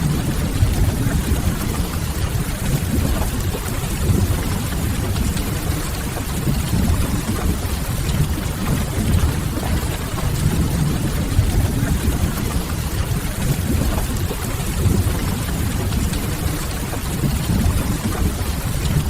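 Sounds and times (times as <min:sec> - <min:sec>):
fire low rumble: 0:00.0 - 0:14.2
steady rain: 0:00.0 - 0:19.0.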